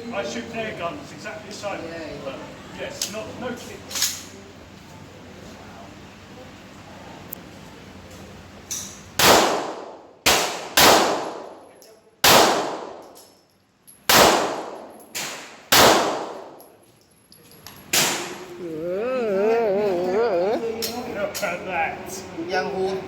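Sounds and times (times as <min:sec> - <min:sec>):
gunshots: 0:09.2 - 0:11.6, 0:12.2 - 0:13.1, 0:14.1 - 0:16.6.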